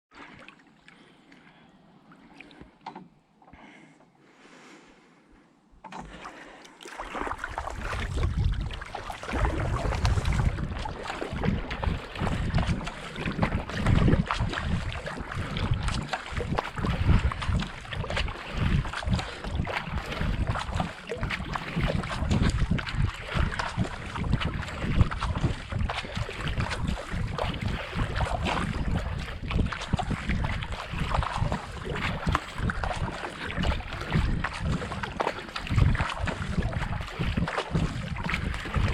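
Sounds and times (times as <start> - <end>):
paddle strokes in water: 0.1 - 38.9
wind buffeting microphone: 7.3 - 38.9.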